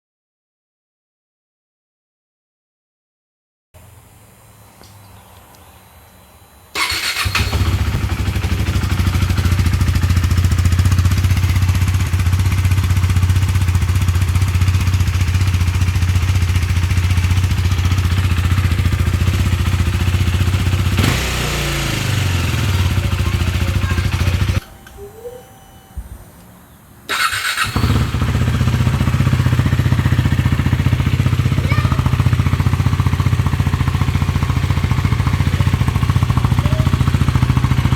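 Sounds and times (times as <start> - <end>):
motorcycle engine idling: 6.7 - 25.0, 27.1 - 37.9.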